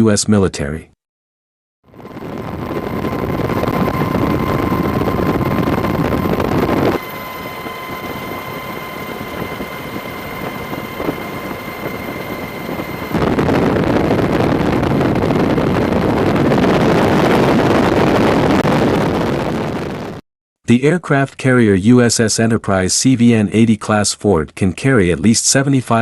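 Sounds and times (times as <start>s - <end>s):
rushing engine and wind noise: 1.9s - 20.2s
faint thin whine: 2.0s - 17.4s.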